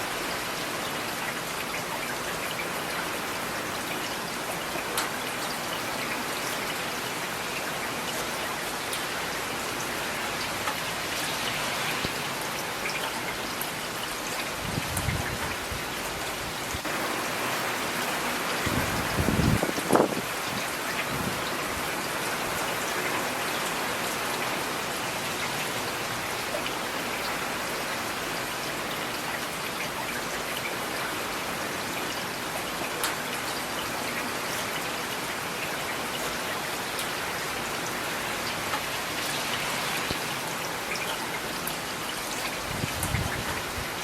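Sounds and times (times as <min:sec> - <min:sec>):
rain on hard surfaces: 0:00.0 - 0:44.0.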